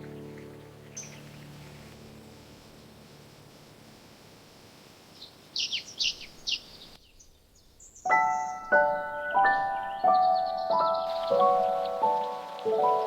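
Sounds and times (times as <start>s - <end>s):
slow piano notes: 0.0s - 4.0s, 8.1s - 13.0s
bird chirping: 0.0s - 13.0s.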